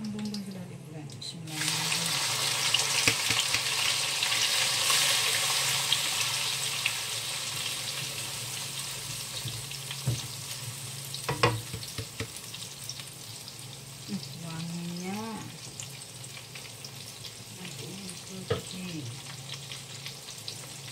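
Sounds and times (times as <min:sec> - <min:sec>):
spice paste sizzling in oil: 0:01.4 - 0:20.9.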